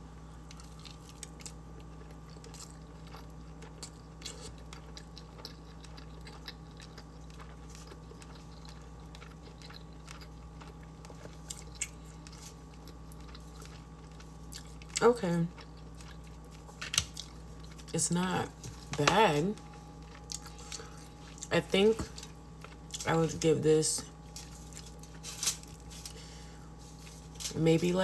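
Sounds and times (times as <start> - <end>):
faint steady hum: 0.0 - 28.0
person chewing food: 0.4 - 18.9, 19.5 - 23.1.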